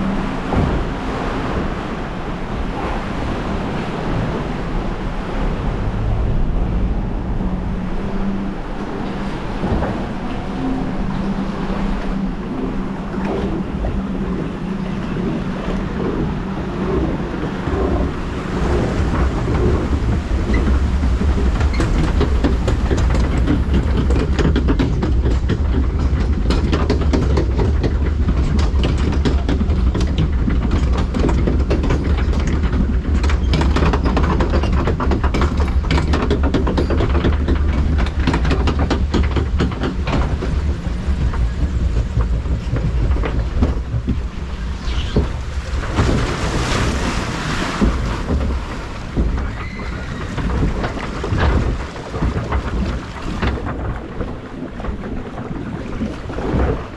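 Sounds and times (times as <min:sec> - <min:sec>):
lift mechanism rumbling: 0:00.0 - 0:56.9
rapid clacking and rattling: 0:15.9 - 0:56.9.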